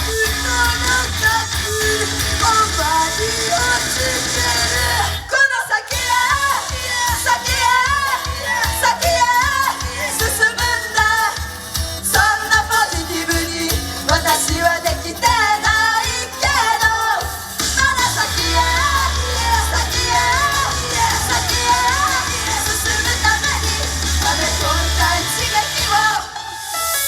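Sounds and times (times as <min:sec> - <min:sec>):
heavy steady bass: 0:00.0 - 0:05.3, 0:17.6 - 0:26.2
pop song with singing: 0:00.0 - 0:27.0.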